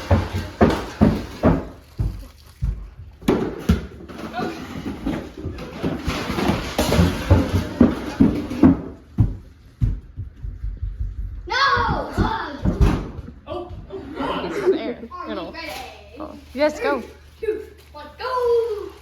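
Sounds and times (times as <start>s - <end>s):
objects toppling and clattering: 0.0s - 9.5s.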